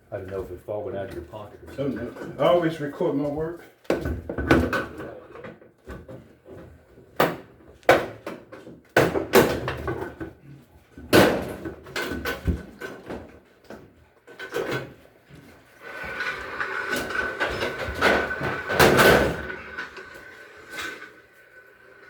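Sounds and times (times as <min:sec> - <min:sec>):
knocks of hard parts and tools: 0:03.9 - 0:06.6, 0:07.2 - 0:10.4, 0:11.0 - 0:13.8, 0:17.4 - 0:19.9.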